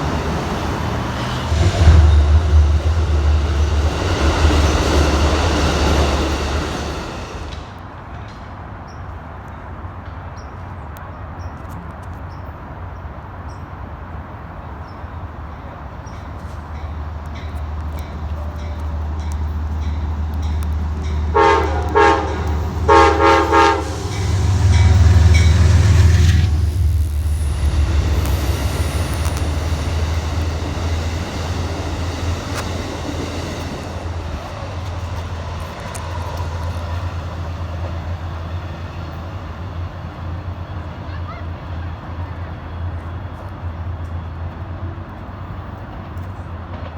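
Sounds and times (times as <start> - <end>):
low outdoor rumble: 1.2 - 7.7, 16.8 - 40.7.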